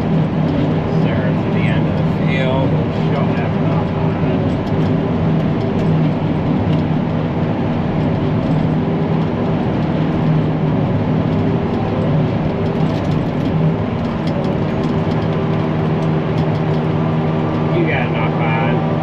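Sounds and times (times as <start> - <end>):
forage chopper droning: 0.0 - 19.0.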